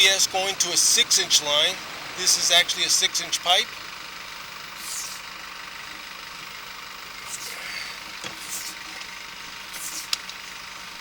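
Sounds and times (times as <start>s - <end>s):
engine-like running noise: 0.0s - 11.0s
short swishes: 9.7s - 10.2s
sharp clicks: 10.0s - 10.4s.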